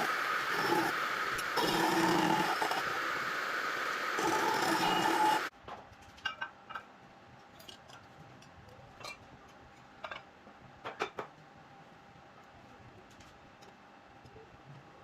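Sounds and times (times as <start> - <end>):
loud steady noise: 0.0 - 5.5.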